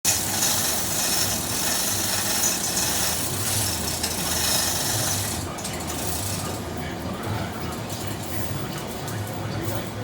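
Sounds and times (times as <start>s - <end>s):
power tool grinding: 0.0s - 6.6s.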